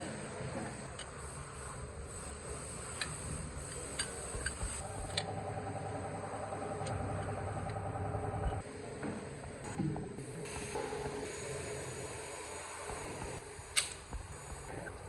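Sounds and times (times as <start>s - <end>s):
engine running with low rumble: 4.3s - 11.1s.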